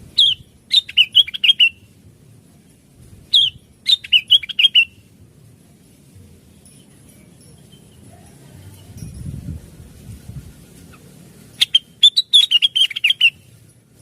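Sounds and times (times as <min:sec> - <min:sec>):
bird singing quick chirping notes: 0:00.1 - 0:01.9, 0:03.3 - 0:05.0, 0:11.6 - 0:13.5.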